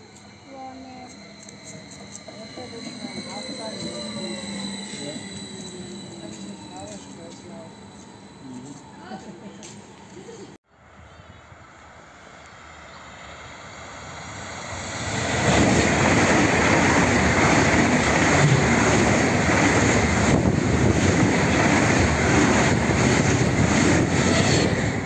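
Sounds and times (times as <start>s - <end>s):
high-speed train passing: 0.0s - 25.0s.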